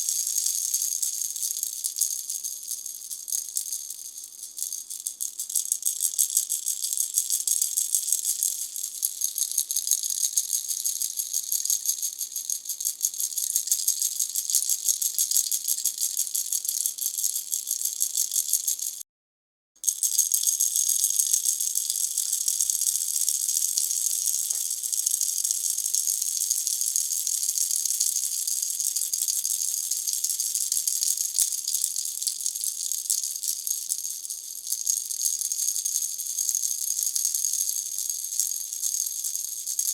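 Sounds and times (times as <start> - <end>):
baby rattle shaken: 0.0 - 19.0, 19.8 - 39.9.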